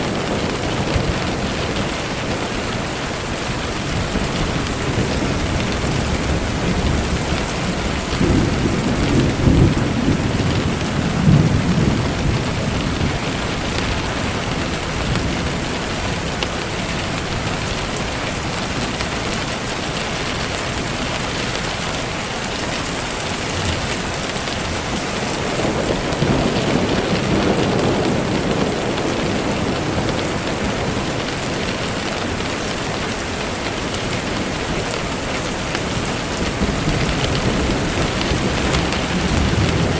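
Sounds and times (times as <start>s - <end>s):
steady rain falling: 0.0s - 39.9s
low rolls of thunder: 3.4s - 17.8s, 23.6s - 35.0s, 35.7s - 39.9s.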